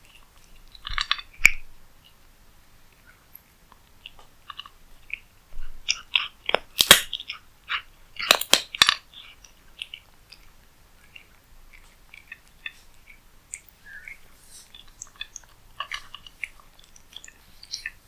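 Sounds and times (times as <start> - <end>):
cat chewing food: 2.9 - 18.0
loud sharp crunches: 6.8 - 7.2.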